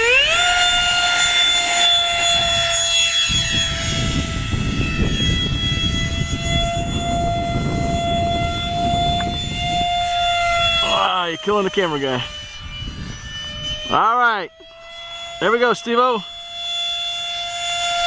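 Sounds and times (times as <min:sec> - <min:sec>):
wind noise rumble: 0:00.0 - 0:14.2
electric ducted fan whine: 0:00.0 - 0:18.0.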